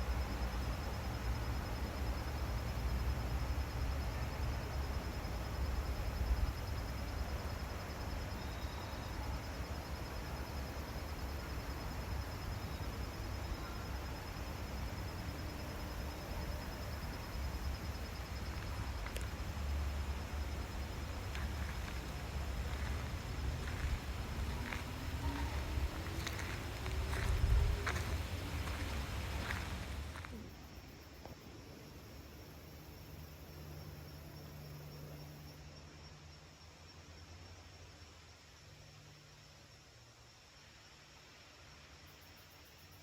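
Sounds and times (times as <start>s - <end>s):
high-pitched pulsing insect trill: 0.2s - 31.2s.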